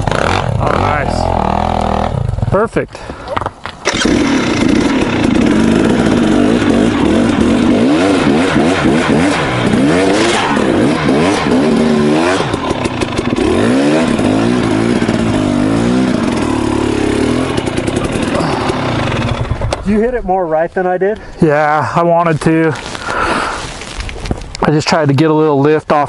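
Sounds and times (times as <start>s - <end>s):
dirt bike engine revving: 0.0s - 2.6s, 3.8s - 20.2s.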